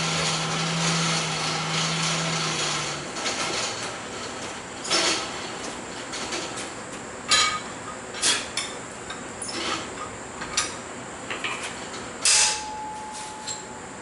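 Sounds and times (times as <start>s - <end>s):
steel striking steel on anvil: 12.2s - 13.6s.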